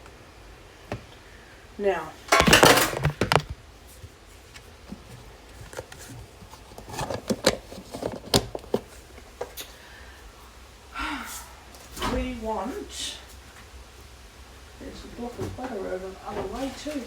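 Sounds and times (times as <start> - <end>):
kitchen items clattering: 2.2 - 3.6, 5.0 - 9.6.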